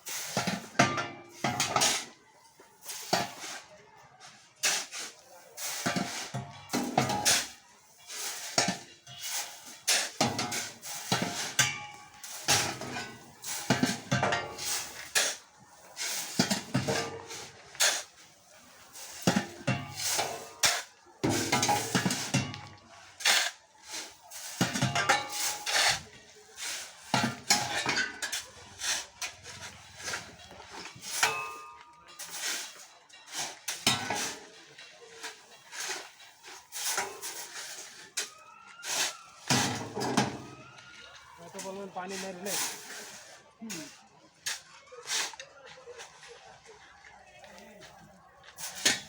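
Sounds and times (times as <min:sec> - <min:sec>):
stones clattering onto trailer: 0:16.2 - 0:18.2, 0:19.0 - 0:22.8.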